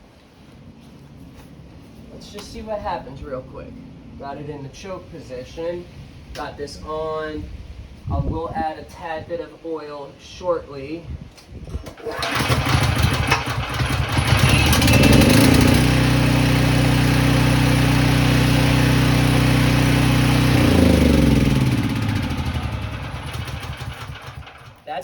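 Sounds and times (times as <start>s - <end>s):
portable generator engine running: 11.8s - 24.8s.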